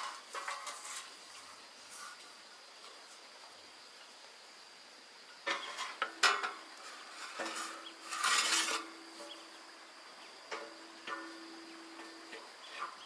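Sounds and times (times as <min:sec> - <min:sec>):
metallic scrape: 0:00.0 - 0:02.2, 0:05.5 - 0:13.0
iron bars clanking: 0:05.5 - 0:09.7, 0:10.5 - 0:13.0.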